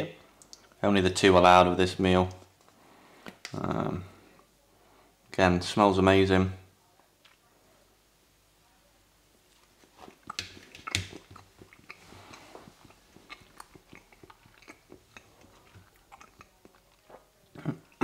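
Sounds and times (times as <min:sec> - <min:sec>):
soft chewing: 0:02.2 - 0:04.5, 0:09.4 - 0:18.0
man biting cake: 0:09.8 - 0:18.0.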